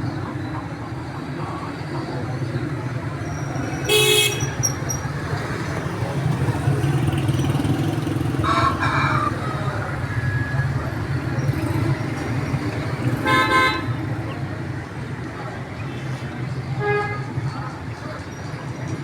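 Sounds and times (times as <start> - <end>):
street traffic rumble: 0.0 - 19.0
vehicle horn honking: 3.8 - 4.8, 13.2 - 14.0.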